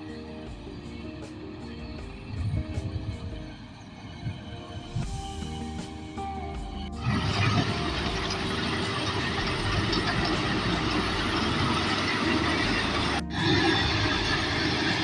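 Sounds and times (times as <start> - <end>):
background music: 0.0 - 15.0
combine harvester rumble and clatter: 6.6 - 15.0.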